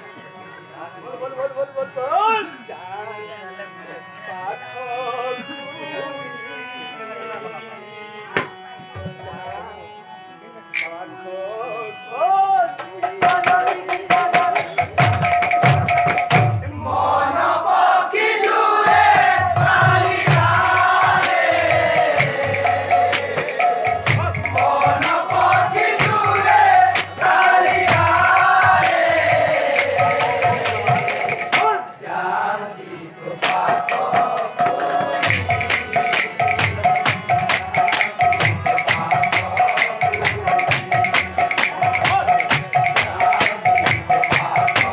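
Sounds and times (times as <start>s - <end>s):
drum beat: 12.9s - 16.7s, 18.3s - 31.9s, 33.4s - 44.9s
group singing: 13.0s - 44.9s
jingling hand cymbals: 13.2s - 16.7s, 18.8s - 32.0s, 33.4s - 44.9s.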